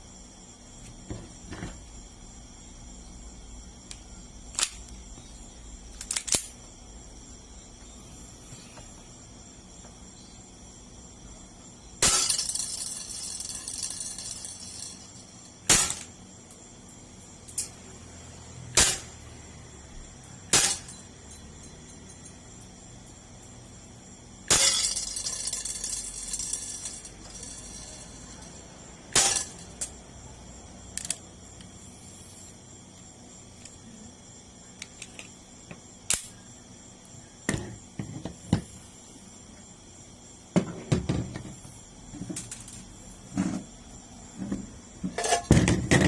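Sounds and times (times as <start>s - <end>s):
airsoft gun shots: 15.7s - 16.1s, 18.8s - 19.1s, 20.5s - 20.9s.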